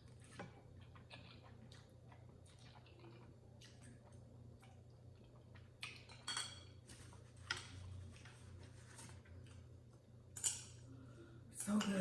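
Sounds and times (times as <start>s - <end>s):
person chewing and slurping noodles: 0.0s - 6.3s.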